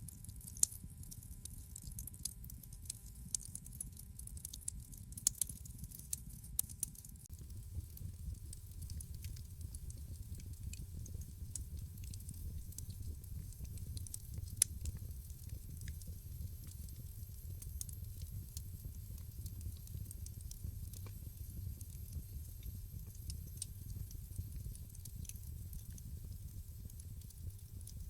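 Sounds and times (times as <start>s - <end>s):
wood fire pops and ticks: 0.3s - 28.0s
low rumble of flame: 7.3s - 28.0s.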